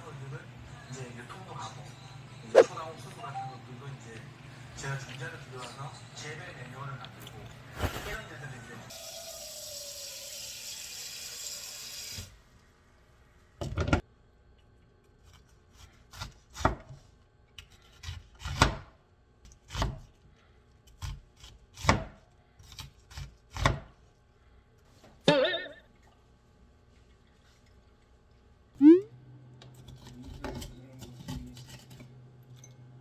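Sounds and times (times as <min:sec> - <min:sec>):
short wavering pitched sound: 0:28.8 - 0:29.1.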